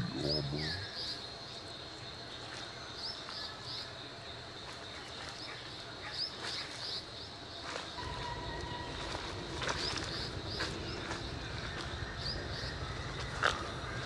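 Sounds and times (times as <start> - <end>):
bird chirping: 0.0 - 4.0.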